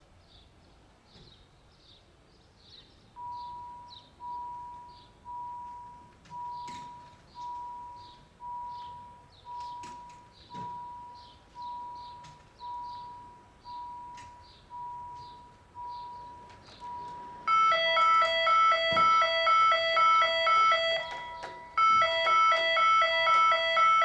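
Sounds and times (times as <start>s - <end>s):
level-crossing warning bell: 3.2s - 24.0s
small birds chirping: 6.4s - 17.3s.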